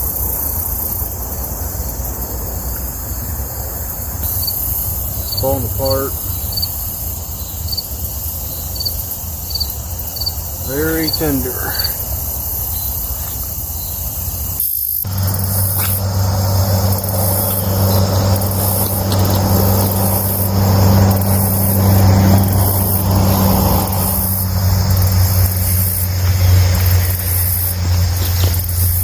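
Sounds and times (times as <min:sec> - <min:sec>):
crickets chirping: 0:00.0 - 0:29.0
low hum: 0:15.0 - 0:29.0
rushing noise: 0:15.0 - 0:29.0.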